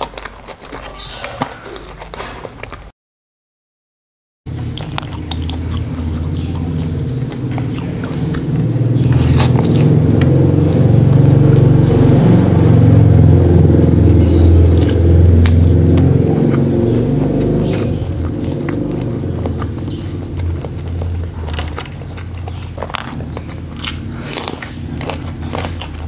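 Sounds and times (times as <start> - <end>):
chewing food: 0.0 - 2.9, 4.5 - 26.0
wet mouth clicks: 4.5 - 12.4, 14.2 - 26.0
loud low rumble: 4.5 - 26.0.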